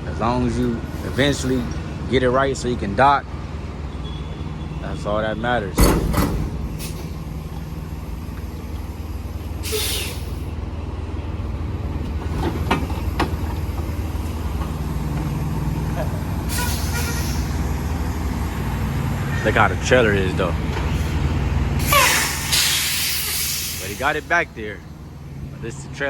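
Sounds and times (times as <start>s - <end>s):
truck engine running at low speed: 0.0s - 26.0s
air brake hissing: 6.1s - 7.9s, 9.6s - 10.6s, 16.4s - 17.7s, 21.8s - 24.3s.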